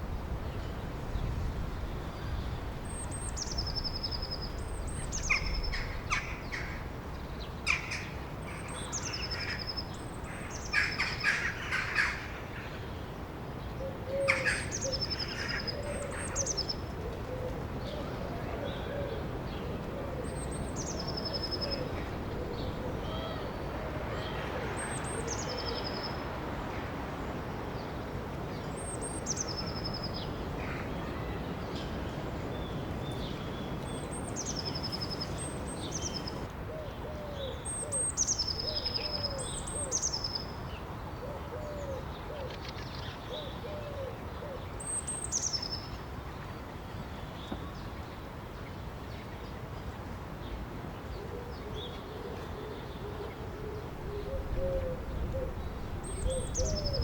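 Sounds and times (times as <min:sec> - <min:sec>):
bird low calls: 0:51.2 - 0:57.0.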